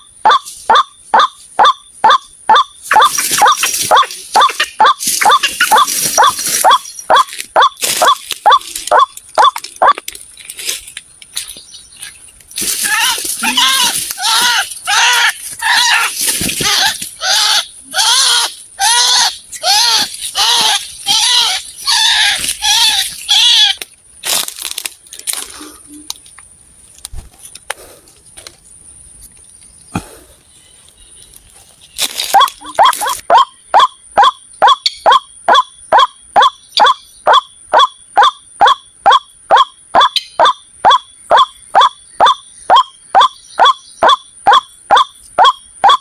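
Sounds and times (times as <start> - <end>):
waterhen calling harsh notes: 0.0 - 10.0, 12.6 - 23.8, 32.3 - 46.0.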